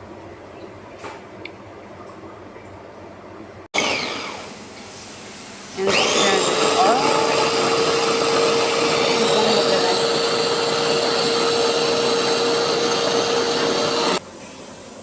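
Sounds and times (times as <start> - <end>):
food processor whirring: 3.8 - 4.6, 5.8 - 14.2.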